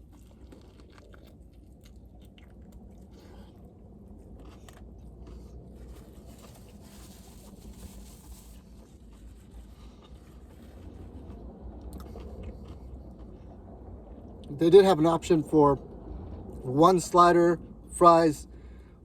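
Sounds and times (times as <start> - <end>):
crunchy chewing: 0.0 - 14.6
low steady hum: 0.0 - 19.0.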